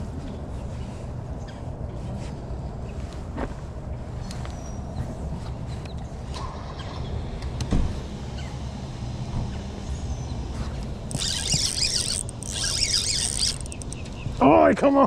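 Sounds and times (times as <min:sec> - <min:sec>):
boat motor humming: 0:10.8 - 0:14.1.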